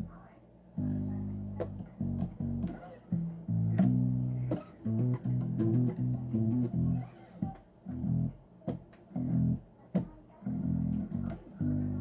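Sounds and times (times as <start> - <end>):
bass guitar plucked notes: 0.8 - 7.1, 7.9 - 8.4, 9.1 - 9.6, 10.5 - 12.0.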